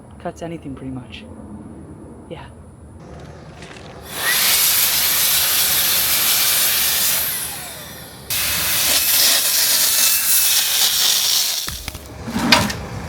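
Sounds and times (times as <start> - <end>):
grinder cutting concrete: 4.0 - 12.1.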